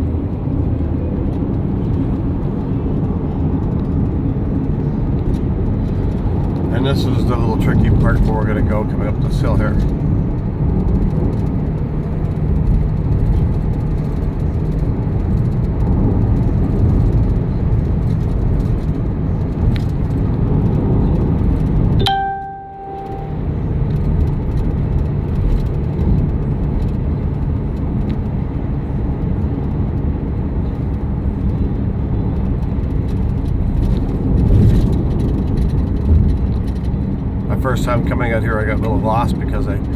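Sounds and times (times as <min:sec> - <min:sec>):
car engine and road noise: 0:00.0 - 0:39.9
short tone: 0:22.0 - 0:23.6.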